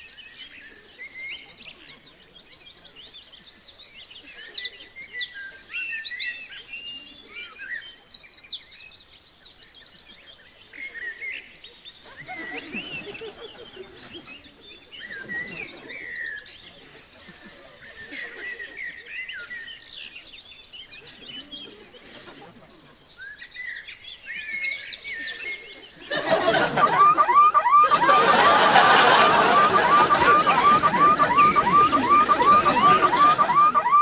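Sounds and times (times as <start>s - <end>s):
birds chirping and singing: 22.9s - 34.0s.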